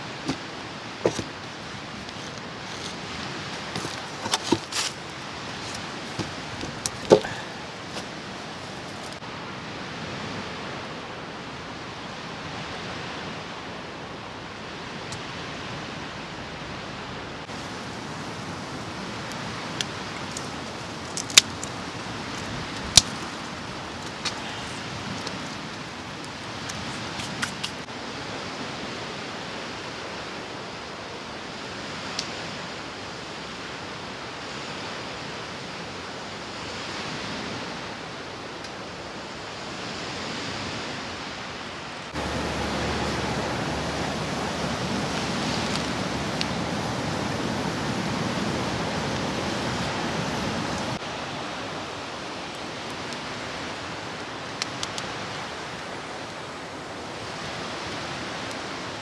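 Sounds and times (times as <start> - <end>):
rushing outdoor ambience: 0.0 - 28.0, 42.1 - 59.0
faint clicks: 42.2 - 51.0.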